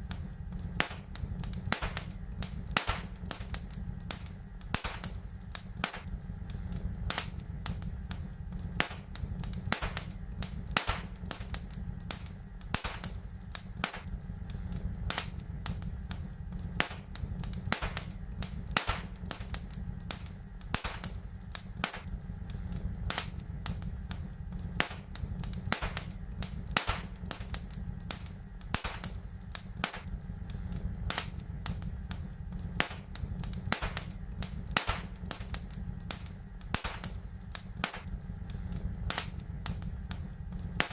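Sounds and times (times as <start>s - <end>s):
low fire rumble: 0.0s - 40.9s
wood fire crackling and popping: 0.0s - 40.9s.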